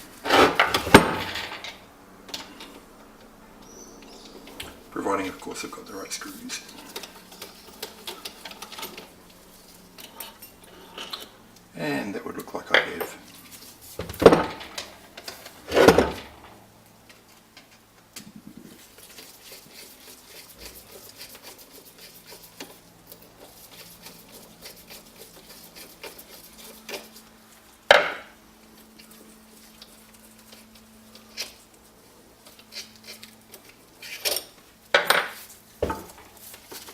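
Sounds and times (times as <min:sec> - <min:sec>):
metal parts knocking on workbench: 0:00.3 - 0:01.8, 0:35.0 - 0:36.3.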